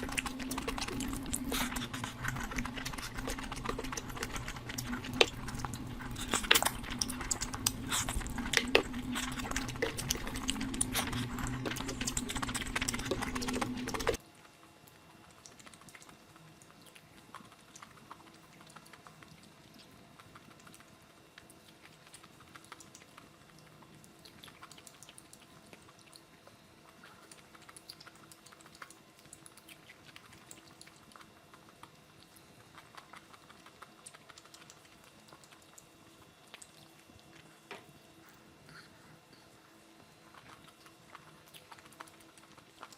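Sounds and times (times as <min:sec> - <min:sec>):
wet chewing and smacking: 0:00.0 - 0:38.7, 0:39.4 - 0:42.9
electrical hum: 0:00.0 - 0:42.9.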